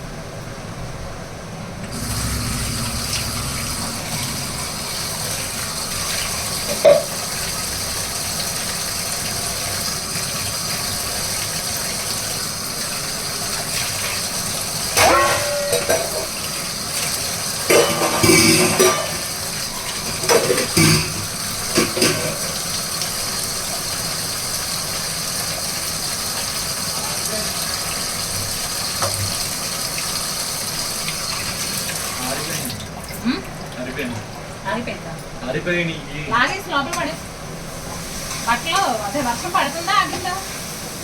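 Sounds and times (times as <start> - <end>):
water hissing: 1.8 - 28.9.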